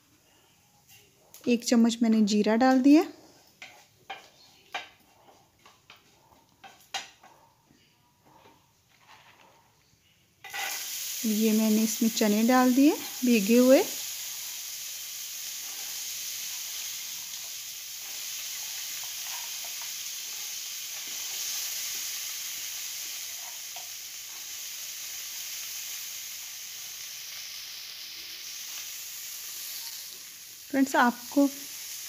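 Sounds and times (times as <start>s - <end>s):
chickpeas sizzling in hot oil: 10.4s - 32.0s.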